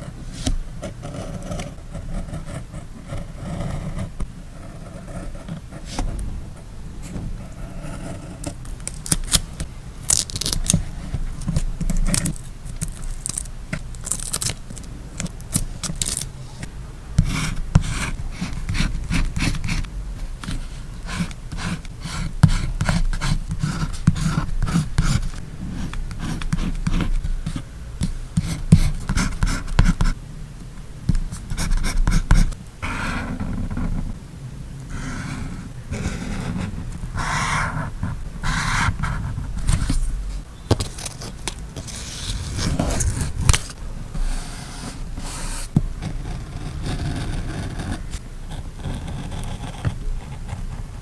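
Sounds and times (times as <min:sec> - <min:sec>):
paper and tape rustling: 0:08.7 - 0:16.7, 0:39.6 - 0:45.7.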